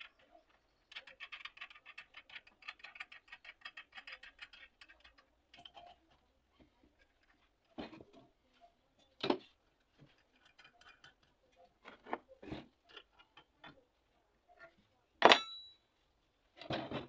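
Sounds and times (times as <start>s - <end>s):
sharp metallic clink: 15.2s - 15.8s.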